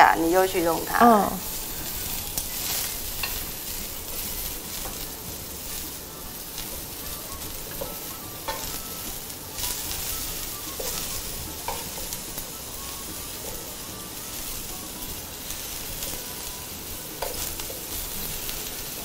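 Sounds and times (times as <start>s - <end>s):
mushrooms sizzling in oil: 0.0s - 19.0s
tongs clicking on pan: 1.8s - 5.9s, 6.6s - 12.5s, 17.2s - 19.0s.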